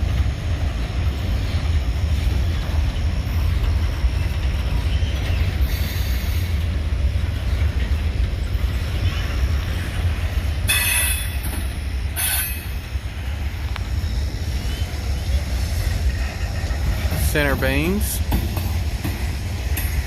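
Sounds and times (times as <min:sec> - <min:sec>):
freight train rumbling on rails: 0:00.0 - 0:20.0
wheel flange squeal: 0:10.7 - 0:11.5, 0:12.1 - 0:12.8.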